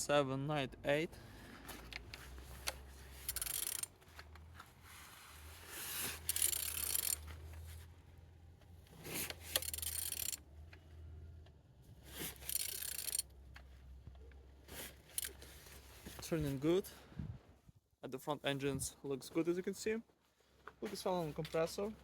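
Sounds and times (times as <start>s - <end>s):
engine turned over by hand: 1.6s - 4.4s, 6.0s - 7.6s, 8.9s - 10.8s, 12.0s - 13.3s, 14.7s - 15.5s
tool clicks: 1.9s - 4.0s, 6.2s - 7.3s, 9.3s - 10.4s, 12.3s - 13.3s, 15.1s - 15.4s.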